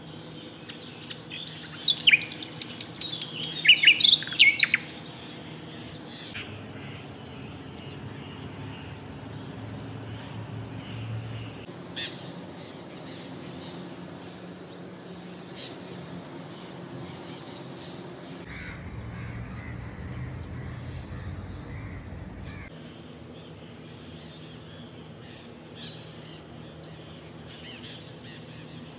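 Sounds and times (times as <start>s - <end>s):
rapid high-pitched bird calls: 0.0s - 19.8s
low steady hum: 0.0s - 28.9s.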